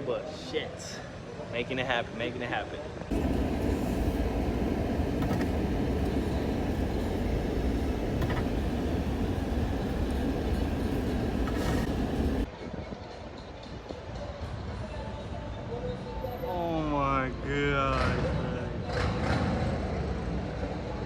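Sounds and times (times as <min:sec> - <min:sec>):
quiet hum: 0:03.1 - 0:12.5
truck engine and tyre rumble: 0:03.1 - 0:12.5.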